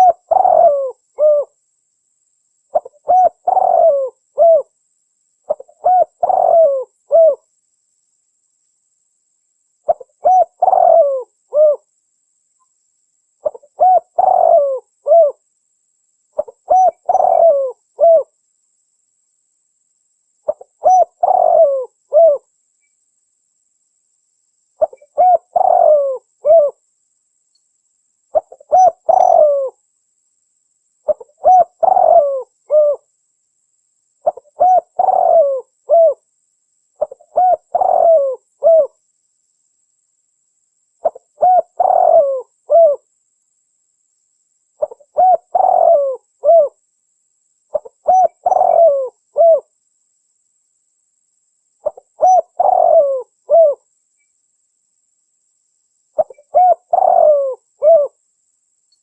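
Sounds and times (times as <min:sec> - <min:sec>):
dove cooing: 0:00.0 - 0:01.6, 0:02.7 - 0:04.7, 0:05.5 - 0:07.4, 0:09.9 - 0:11.9, 0:13.4 - 0:15.4, 0:16.4 - 0:18.3, 0:20.4 - 0:22.5, 0:24.8 - 0:26.8, 0:28.3 - 0:29.8, 0:31.1 - 0:33.1, 0:34.2 - 0:36.2, 0:37.0 - 0:39.0, 0:41.0 - 0:43.1, 0:44.8 - 0:46.8, 0:47.7 - 0:49.7, 0:51.8 - 0:53.8, 0:56.2 - 0:58.2.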